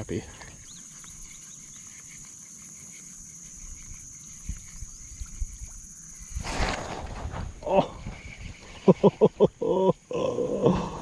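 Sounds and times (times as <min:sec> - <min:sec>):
faint chirps: 0:00.0 - 0:11.0
insects buzzing: 0:00.0 - 0:11.0.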